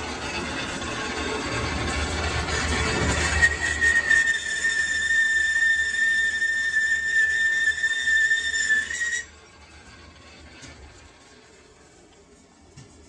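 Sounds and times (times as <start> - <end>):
lathe tool squealing: 0.0 - 11.2.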